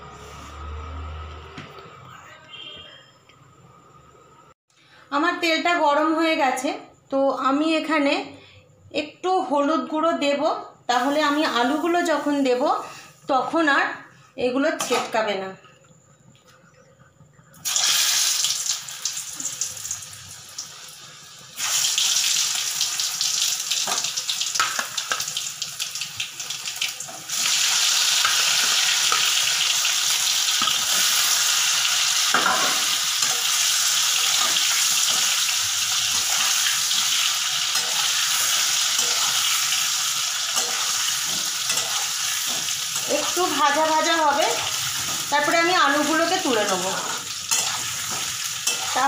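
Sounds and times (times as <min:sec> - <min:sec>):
potatoes sizzling in hot oil: 0:10.9 - 0:13.0, 0:17.6 - 0:49.0.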